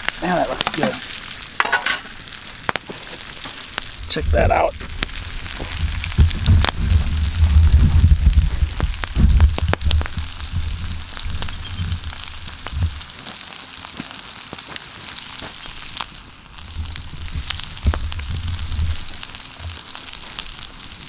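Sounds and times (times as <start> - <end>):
fish sizzling over campfire: 0.0 - 21.0
sharp pops and crackles: 0.0 - 21.0
low rumble: 3.9 - 13.0.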